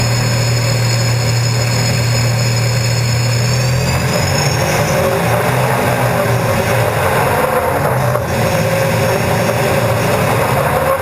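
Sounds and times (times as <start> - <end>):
high turbine whine: 0.0 - 11.0
rushing noise: 0.0 - 11.0
turbine engine drone: 0.0 - 11.0.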